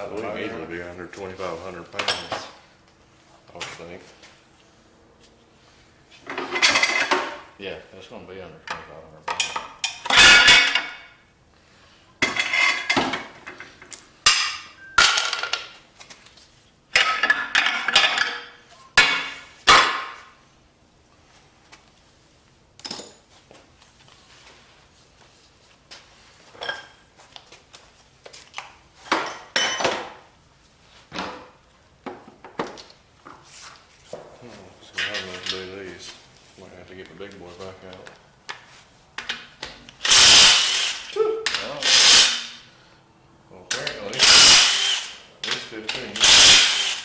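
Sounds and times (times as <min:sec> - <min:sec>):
metal tools and parts clanking: 0:02.0 - 0:02.6, 0:06.2 - 0:07.4, 0:08.7 - 0:11.0, 0:12.2 - 0:13.6, 0:14.3 - 0:15.8, 0:22.8 - 0:23.3, 0:32.6 - 0:33.0, 0:43.7 - 0:47.0.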